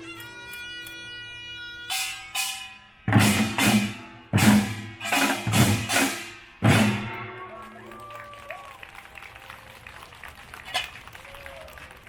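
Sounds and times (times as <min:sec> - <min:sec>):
held wind instrument note: 0:00.0 - 0:07.6
ringing strikes: 0:01.9 - 0:07.4
loud drum hits: 0:03.1 - 0:07.4.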